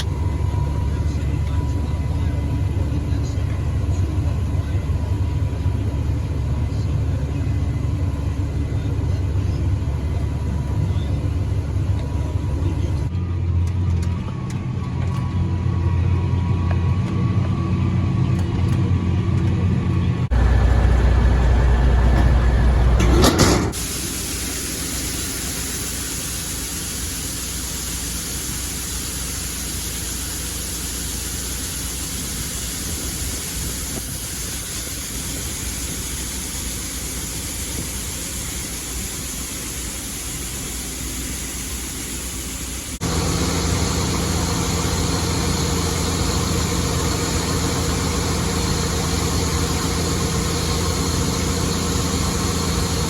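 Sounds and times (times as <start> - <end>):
diesel engine running: 0.0 - 53.0
low rumble: 20.3 - 23.4.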